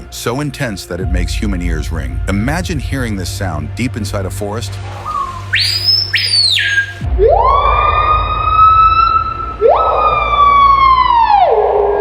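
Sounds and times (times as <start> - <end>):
bird ringing whistles: 5.0 - 10.2.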